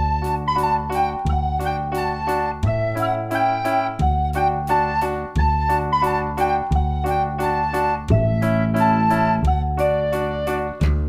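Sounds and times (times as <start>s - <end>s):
soft keyboard melody: 0.0s - 11.0s.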